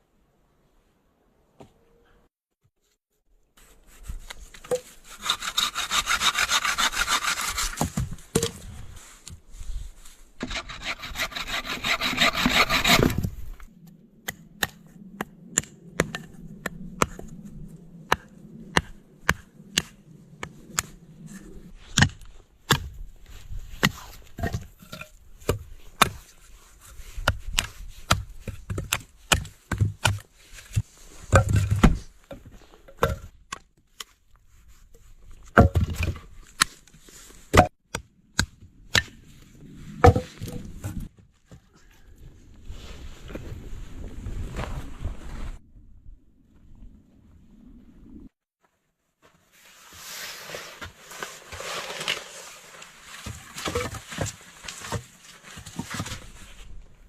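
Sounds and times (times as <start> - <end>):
hand saw cutting wood: 4.8 - 8.0, 10.4 - 13.3.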